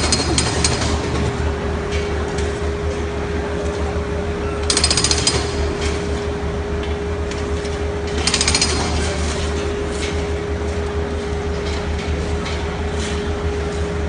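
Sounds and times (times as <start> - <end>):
jackhammer breaking concrete: 0.0 - 1.2, 4.7 - 6.0, 8.1 - 9.3
construction machinery rumble: 0.0 - 14.0.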